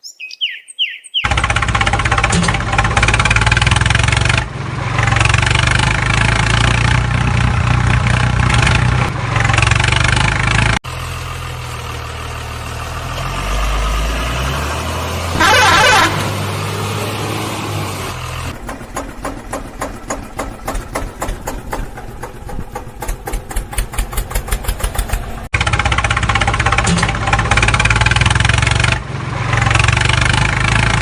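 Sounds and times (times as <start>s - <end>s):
engine burst: 1.3s - 7.6s, 13.5s - 29.0s
heavy vehicle engines running: 1.3s - 31.0s.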